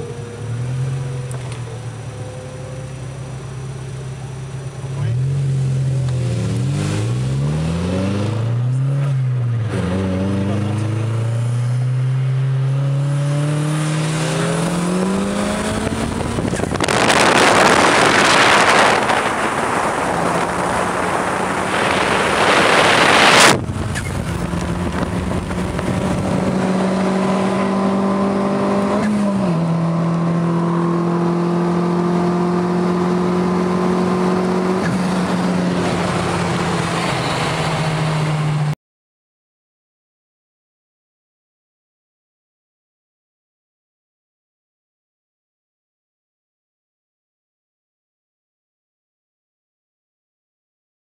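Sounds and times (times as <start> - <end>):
car engine accelerating: 0.0 - 38.8.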